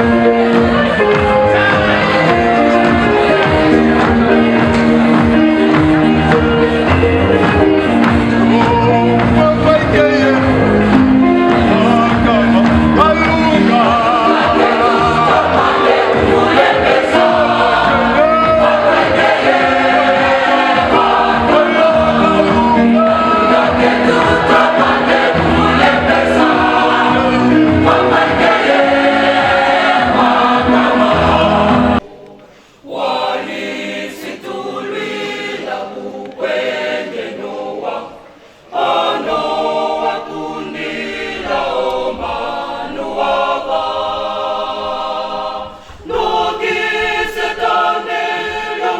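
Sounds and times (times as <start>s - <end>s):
choir singing unaccompanied: 0.0s - 48.9s
choir singing with instrumental backing: 0.0s - 48.9s.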